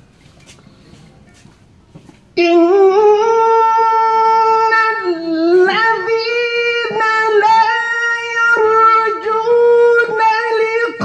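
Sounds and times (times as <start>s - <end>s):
man reciting melodically: 2.4s - 11.0s.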